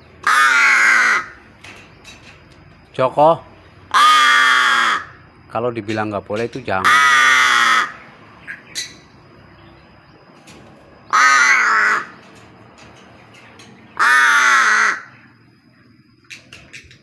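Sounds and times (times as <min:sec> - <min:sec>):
crow cawing harshly: 0:00.2 - 0:01.4, 0:03.9 - 0:05.2, 0:06.8 - 0:08.0, 0:11.1 - 0:12.2, 0:13.9 - 0:15.2.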